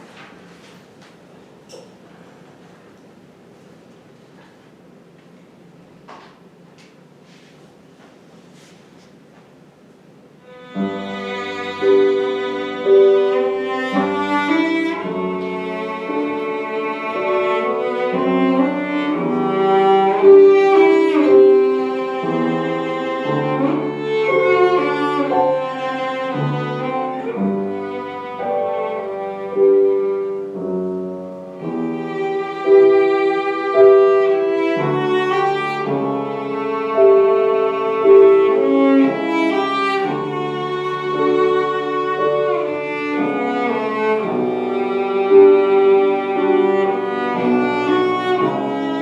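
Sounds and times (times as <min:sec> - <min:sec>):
piano accompaniment: 0:10.3 - 0:49.0
cello bowed notes: 0:10.4 - 0:49.0.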